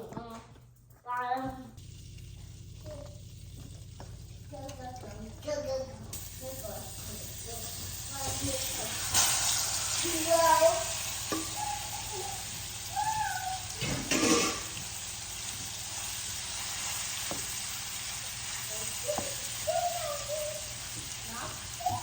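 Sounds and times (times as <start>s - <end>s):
chicken sizzling in a pan: 1.8s - 22.0s
pan scrape or clatter: 13.8s - 15.0s.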